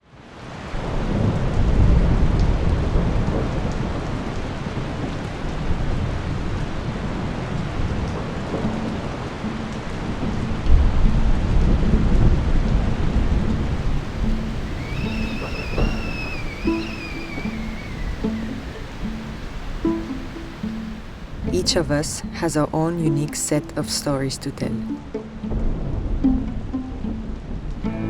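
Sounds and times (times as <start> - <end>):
steady rain falling: 0.0 - 28.0
low rumbles of thunder: 0.8 - 20.1.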